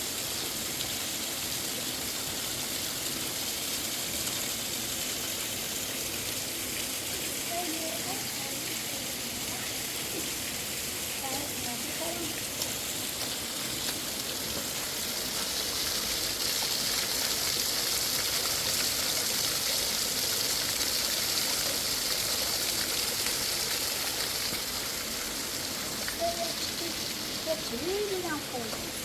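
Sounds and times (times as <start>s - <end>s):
stream water rushing: 0.0s - 29.0s.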